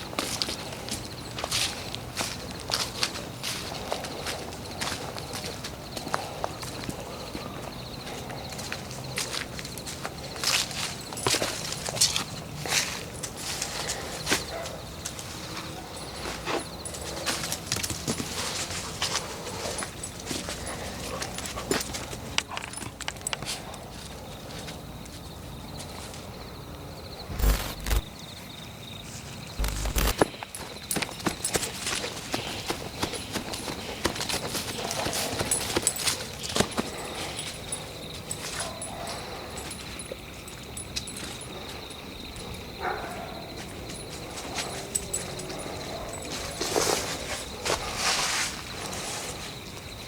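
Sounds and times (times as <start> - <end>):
crunches and clicks underfoot: 8.3 - 25.2, 27.3 - 28.2, 29.6 - 42.6
insect trill: 25.3 - 50.0.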